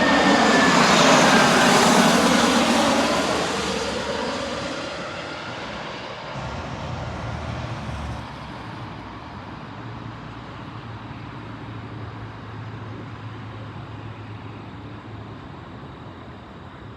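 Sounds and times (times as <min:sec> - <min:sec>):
jet aircraft passing: 0:00.0 - 0:16.9
steady low rumble: 0:06.4 - 0:09.7.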